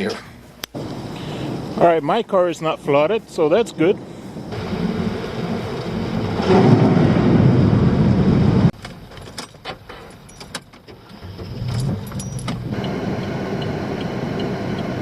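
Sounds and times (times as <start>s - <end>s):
low car rumble: 2.7s - 9.3s
loud rushing noise: 3.4s - 8.7s
keys jangling: 9.2s - 10.7s, 11.6s - 12.7s.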